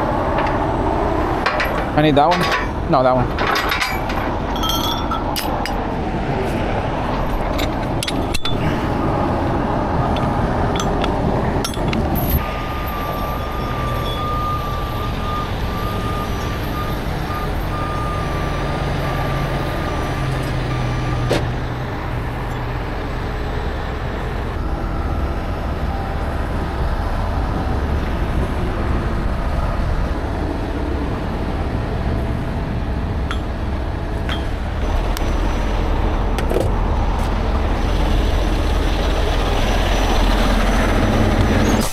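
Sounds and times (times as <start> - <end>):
truck diesel engine running: 0.0 - 41.9
reversing alarm beeping: 12.3 - 21.3, 24.6 - 26.7.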